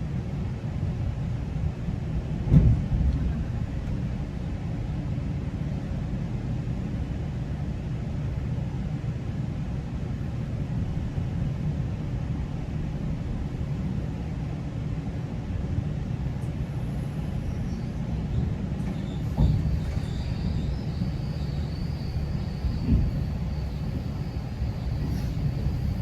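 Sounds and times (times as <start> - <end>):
train rumbling: 0.0 - 8.1, 9.2 - 26.0
thump: 2.5 - 2.9, 19.3 - 20.7, 21.4 - 24.0
faint high squeals: 16.4 - 26.0.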